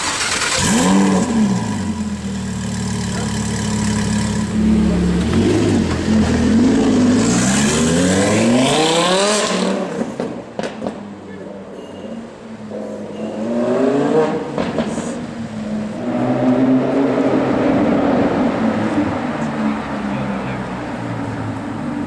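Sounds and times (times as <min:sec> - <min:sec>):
sports car engine revving: 0:00.2 - 0:10.7.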